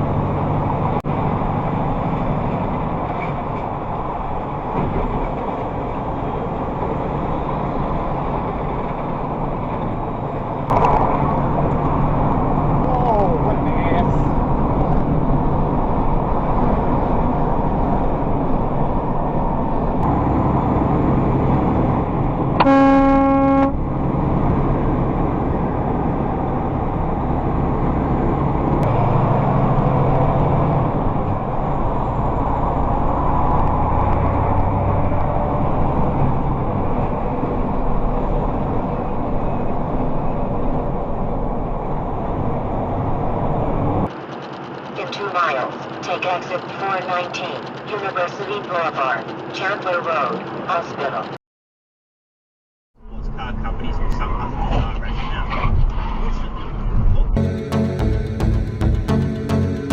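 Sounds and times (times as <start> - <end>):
vehicle driving: 0.0 - 51.4, 53.0 - 59.9
car horn blast: 22.6 - 23.9.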